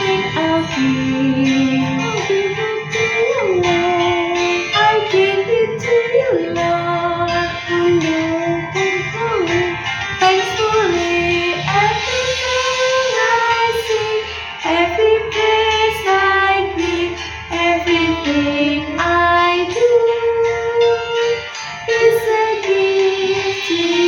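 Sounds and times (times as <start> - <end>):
guitar accompaniment: 0.0 - 24.0
women singing: 0.0 - 24.0.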